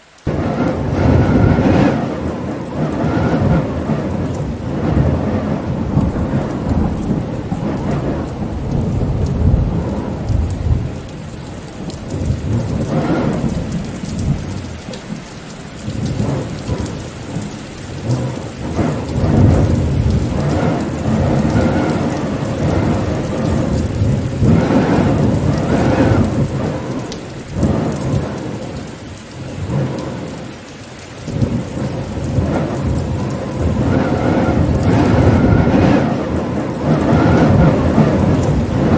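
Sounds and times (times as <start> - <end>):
steady rain: 0.0 - 38.9
deep rumbling: 0.3 - 11.1, 15.8 - 28.9, 31.3 - 38.9.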